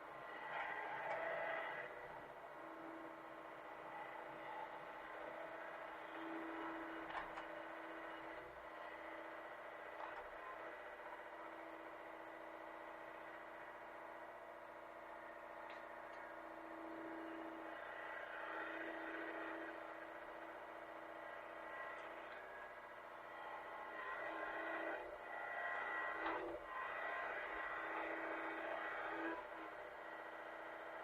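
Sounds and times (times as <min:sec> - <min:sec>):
excavator engine running: 0:00.0 - 0:31.0.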